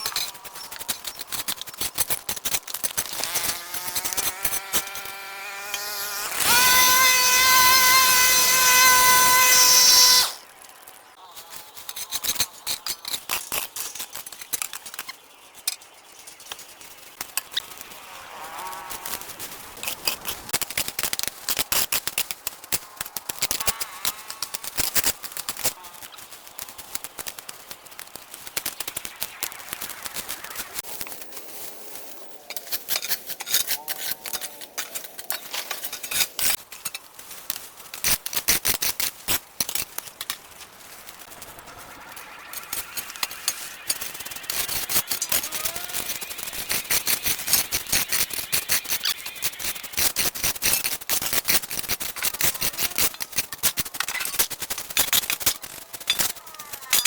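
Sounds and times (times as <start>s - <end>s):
electric power tool whining: 3.1s - 10.4s.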